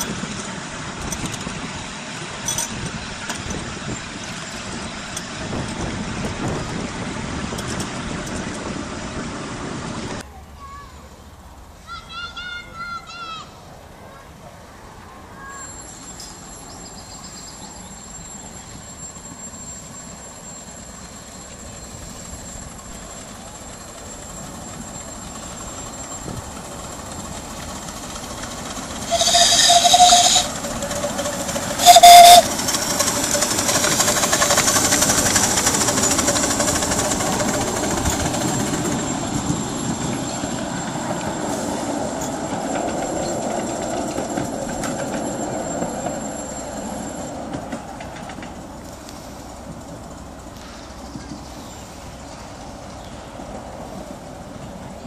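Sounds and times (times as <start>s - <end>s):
train wheels rumbling on track: 0.0s - 10.8s, 14.2s - 55.0s
train whistle: 29.0s - 30.9s, 31.8s - 32.6s.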